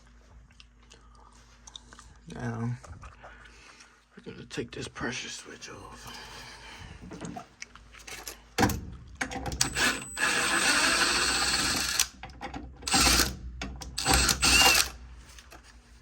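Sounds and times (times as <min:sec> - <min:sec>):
cordless screw gun running: 0:09.6 - 0:12.2, 0:12.8 - 0:15.0.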